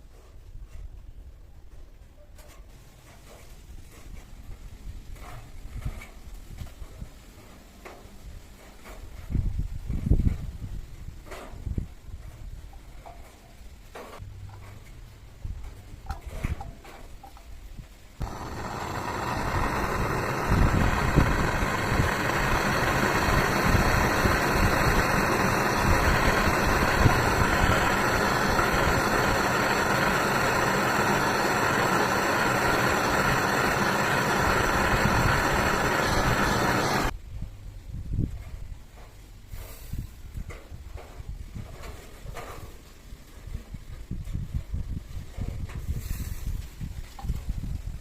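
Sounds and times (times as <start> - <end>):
machine running: 18.2 - 37.1.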